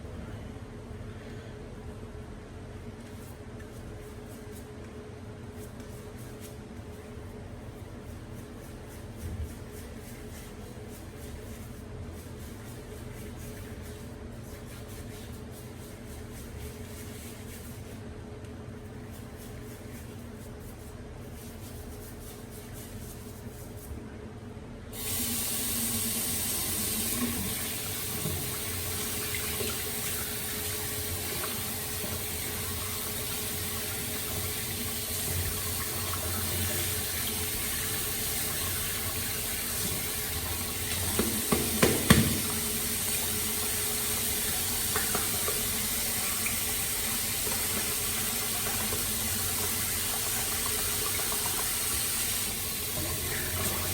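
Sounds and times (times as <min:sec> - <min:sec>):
tap water running into sink: 0:34.3 - 0:53.9.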